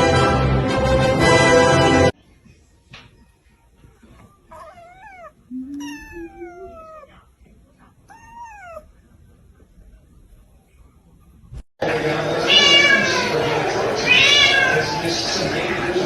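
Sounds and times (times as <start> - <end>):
cat meowing: 4.5 - 7.2, 8.1 - 8.9, 12.4 - 13.3, 14.0 - 15.0.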